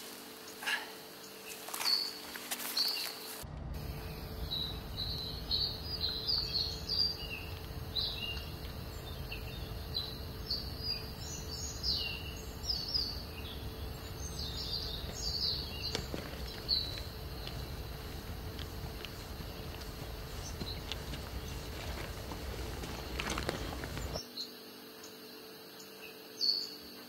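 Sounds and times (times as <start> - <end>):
songbirds chirping: 0.0 - 27.0
low steady rumble: 3.4 - 24.2.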